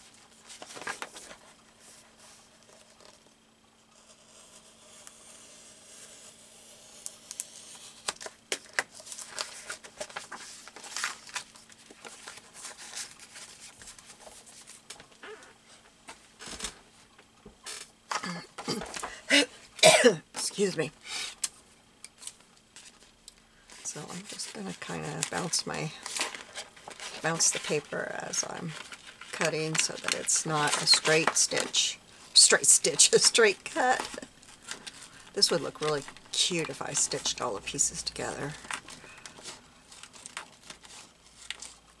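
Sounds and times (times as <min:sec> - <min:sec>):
book page rustling: 0:00.3 - 0:03.3, 0:07.1 - 0:18.0, 0:22.2 - 0:42.0
paper crinkling and crackling: 0:00.3 - 0:03.4, 0:04.0 - 0:16.8, 0:22.1 - 0:42.0.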